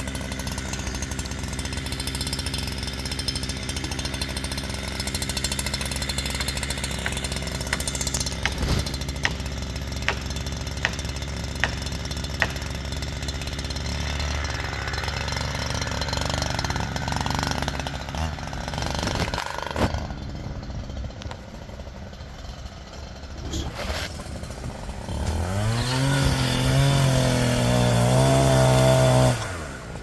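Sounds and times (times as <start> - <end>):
chainsaw cutting: 0.0 - 30.0
sharp knocks: 6.7 - 12.9.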